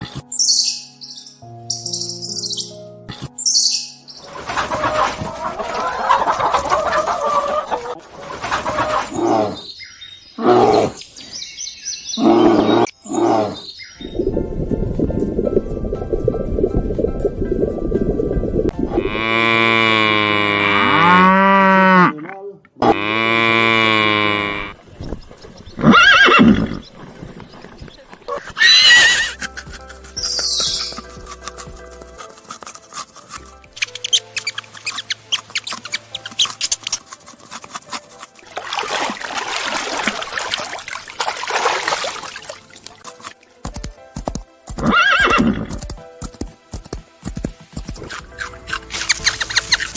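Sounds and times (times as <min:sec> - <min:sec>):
music: 0:00.0 - 0:09.0, 0:13.7 - 0:20.4, 0:28.6 - 0:49.9
farm animal calls: 0:04.2 - 0:09.8, 0:28.3 - 0:31.2
cow mooing: 0:18.9 - 0:22.2, 0:22.8 - 0:24.7
horse neighing: 0:25.8 - 0:26.8, 0:28.5 - 0:29.4, 0:44.8 - 0:45.7.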